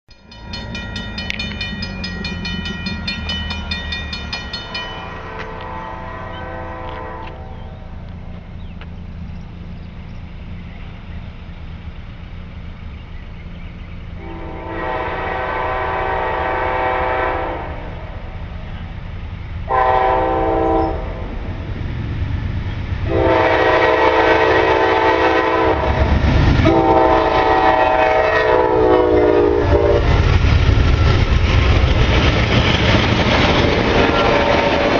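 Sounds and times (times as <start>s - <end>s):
train rumble: 0.1s - 34.9s
locomotive air horn: 5.0s - 7.7s, 14.2s - 18.2s, 19.7s - 21.3s, 23.1s - 30.2s.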